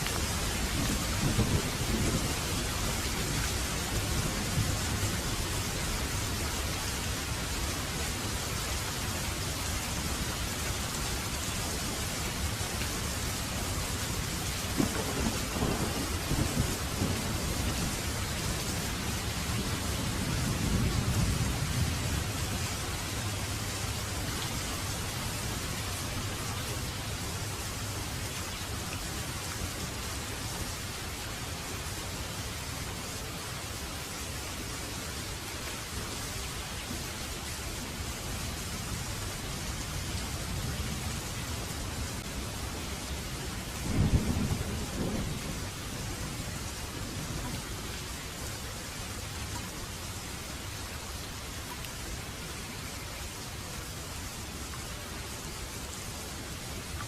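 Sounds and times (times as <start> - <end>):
thunder rumbling: 0.0 - 6.4, 14.6 - 22.8, 43.6 - 47.6
heavy rain: 0.0 - 57.0.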